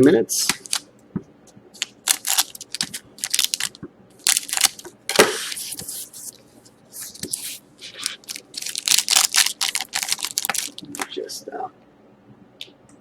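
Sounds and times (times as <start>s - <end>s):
foil wrappers crinkling and tearing: 0.4s - 0.8s, 1.8s - 4.8s, 7.0s - 11.1s.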